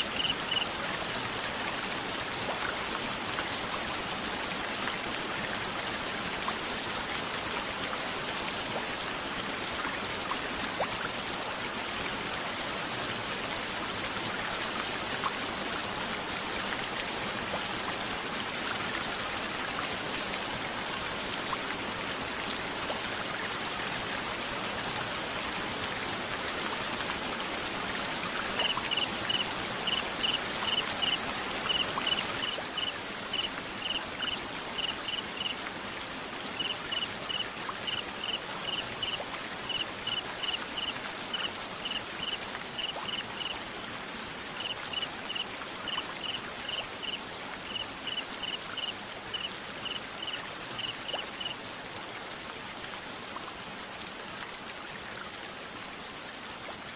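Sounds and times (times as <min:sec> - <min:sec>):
cricket chirping: 0:00.0 - 0:00.7, 0:28.6 - 0:35.5, 0:36.6 - 0:43.5, 0:44.6 - 0:51.6.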